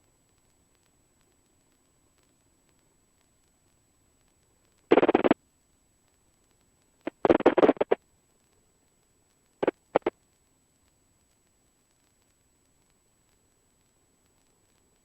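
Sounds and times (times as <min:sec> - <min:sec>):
noisy intercom radio bursts: 0:04.9 - 0:05.4, 0:07.1 - 0:08.0, 0:09.6 - 0:10.1.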